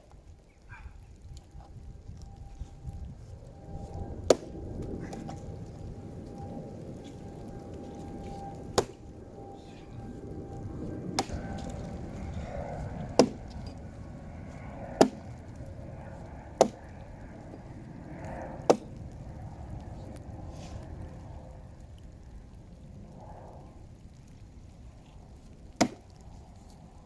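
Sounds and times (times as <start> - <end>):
axe chopping wood: 4.3 - 4.5, 8.8 - 9.0, 11.2 - 11.4, 13.2 - 13.4, 15.0 - 15.2, 16.6 - 16.8, 18.7 - 18.9, 25.8 - 26.1.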